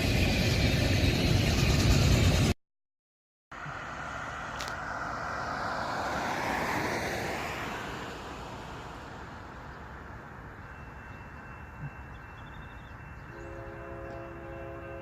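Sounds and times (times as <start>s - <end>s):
passing vehicle rushing: 3.6s - 9.8s
faint steady high tone: 10.4s - 15.0s.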